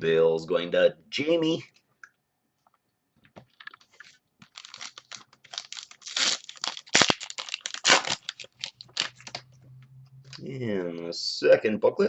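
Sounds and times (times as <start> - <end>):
plastic crinkling and rustling: 3.3 - 9.5.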